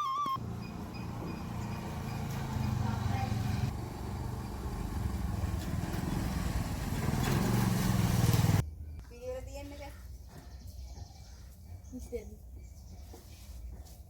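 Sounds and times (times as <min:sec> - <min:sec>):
small engine throbbing: 0:00.4 - 0:08.6.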